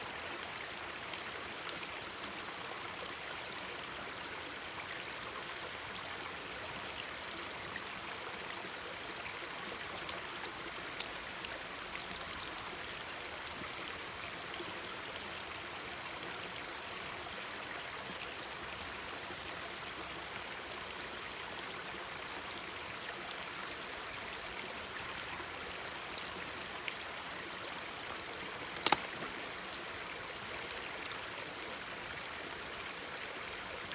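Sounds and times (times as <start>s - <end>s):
mountain stream babbling: 0.0s - 33.9s
campfire popping and crackling: 28.5s - 29.8s.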